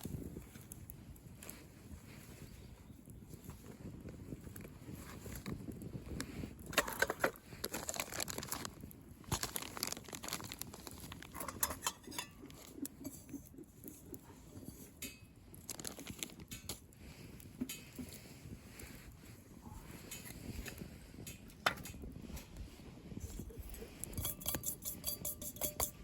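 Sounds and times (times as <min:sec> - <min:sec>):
sticks and embers being moved: 0:00.0 - 0:26.0
wood fire crackling: 0:00.0 - 0:26.0.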